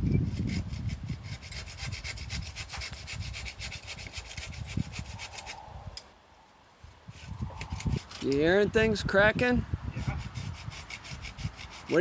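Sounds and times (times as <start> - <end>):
hand saw cutting wood: 0.3 - 5.6, 7.1 - 8.5, 10.0 - 12.0.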